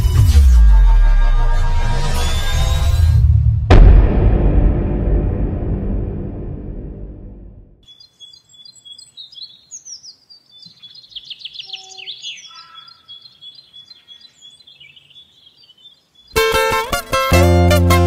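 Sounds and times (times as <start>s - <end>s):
birds chirping and singing: 7.8s - 16.7s
plucked-string music: 16.4s - 18.0s.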